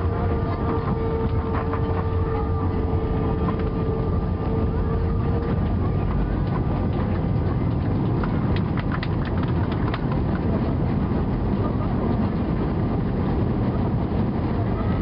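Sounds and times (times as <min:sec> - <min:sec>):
airplane cabin engine roar: 0:00.0 - 0:15.0
sharp clicks and rattles: 0:05.4 - 0:11.0.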